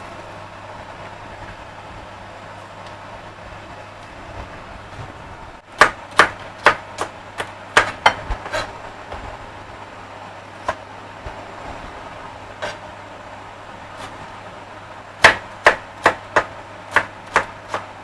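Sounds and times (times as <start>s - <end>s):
knife chopping on cutting board: 5.8s - 8.7s, 15.2s - 17.9s.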